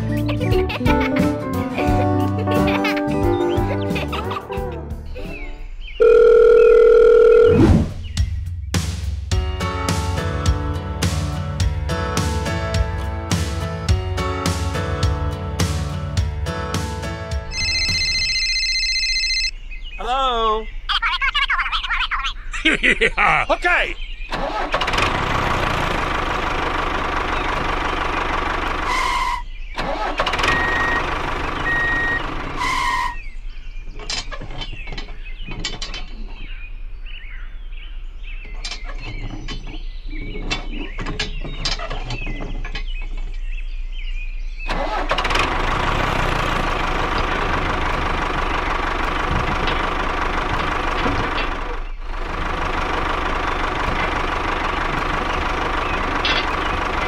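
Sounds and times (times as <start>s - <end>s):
toy tractor engine running: 29.8s - 32.9s, 44.7s - 57.0s.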